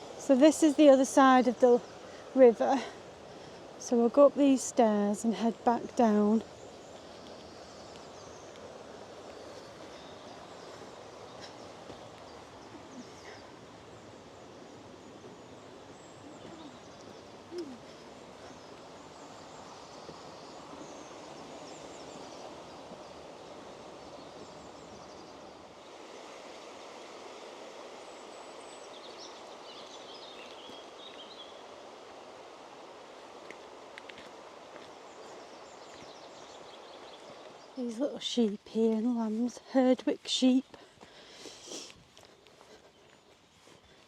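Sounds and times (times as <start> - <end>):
river rushing: 5.2 - 37.8
faint bird chirps: 14.7 - 23.2.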